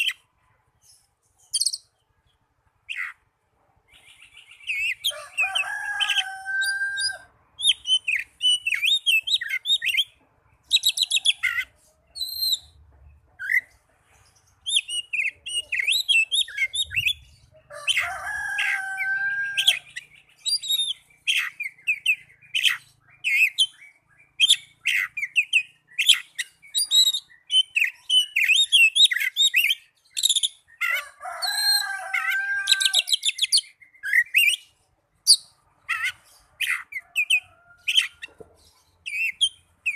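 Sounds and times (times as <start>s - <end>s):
bird singing whistles and trills: 1.4s - 1.9s, 6.6s - 12.8s, 14.6s - 17.4s, 19.4s - 30.8s, 32.8s - 34.7s, 39.0s - 39.9s.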